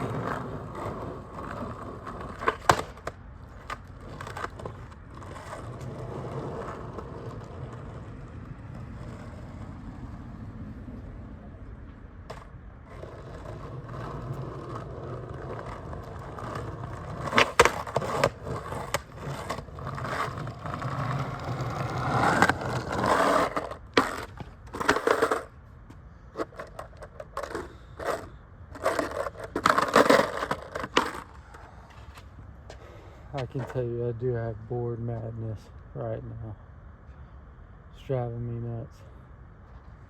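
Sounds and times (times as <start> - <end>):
skateboard clacks: 0.0 - 9.7, 11.7 - 25.5, 26.3 - 33.8
skateboard trucks grinding on curb: 0.0 - 25.6, 26.2 - 35.4
skateboard wheels rolling on pavement: 0.0 - 40.0.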